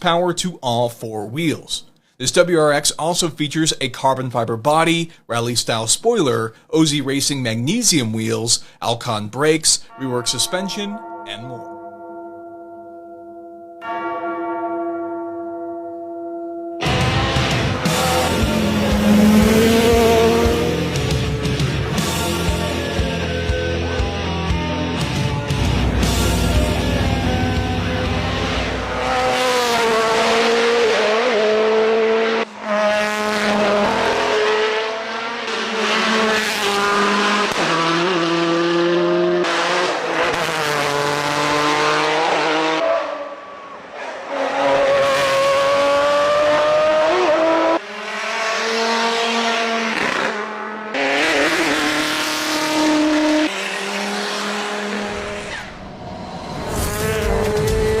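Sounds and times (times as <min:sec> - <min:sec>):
race car engine at full throttle: 0:16.8 - 0:58.0.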